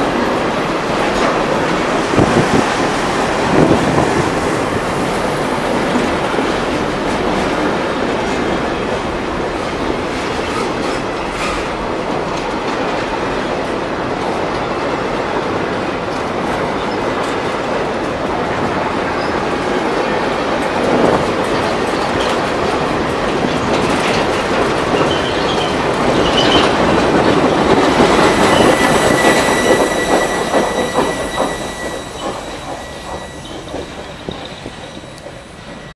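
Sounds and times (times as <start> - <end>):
freight train rumbling past: 0.0 - 35.9
wheels clacking over rail joints: 0.0 - 35.9
high thin wheel squeal: 27.8 - 35.4.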